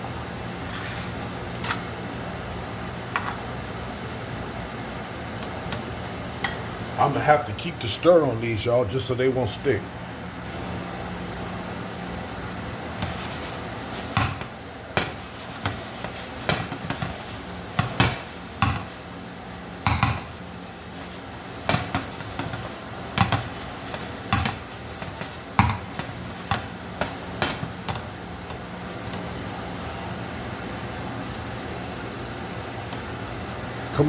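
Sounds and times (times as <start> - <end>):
oil sizzling: 0.0 - 8.6, 10.4 - 34.0
utensil scraping a pan: 0.6 - 1.8, 13.0 - 28.6.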